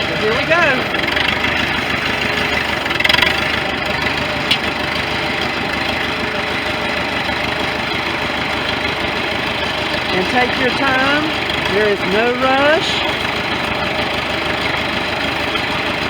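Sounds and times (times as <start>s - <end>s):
loud rattle: 0.0s - 16.0s
tractor engine running: 0.0s - 16.0s.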